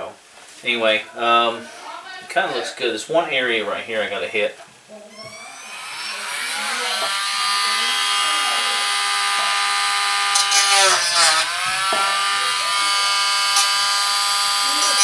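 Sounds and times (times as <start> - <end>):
rotary tool whining: 5.1 - 15.0.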